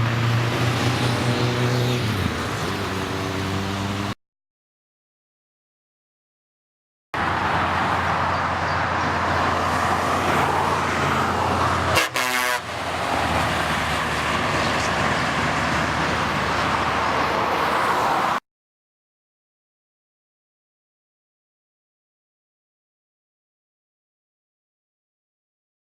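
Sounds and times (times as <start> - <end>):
horn toot: 11.9 - 12.7.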